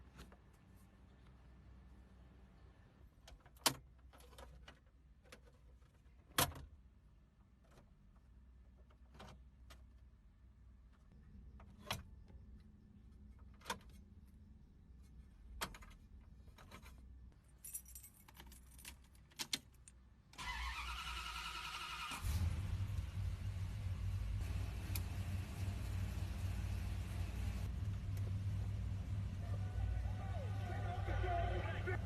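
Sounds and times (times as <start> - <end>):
keys jangling: 17.5 - 19.7
car starter cranking: 20.4 - 23.0
car engine rumbling: 20.5 - 32.0.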